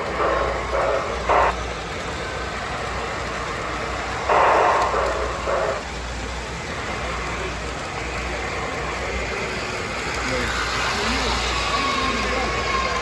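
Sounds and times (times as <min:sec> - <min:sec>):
low hum: 0:00.0 - 0:07.6
crowd murmur: 0:00.0 - 0:13.0.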